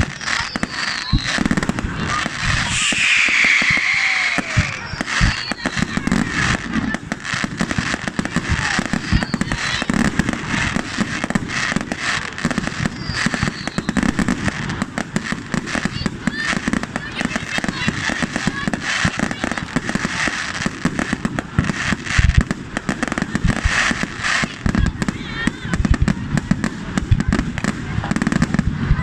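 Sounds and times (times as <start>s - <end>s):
crowd noise: 0.0s - 29.0s
fireworks and firecrackers banging: 0.0s - 29.0s
fireworks whistling: 0.0s - 29.0s.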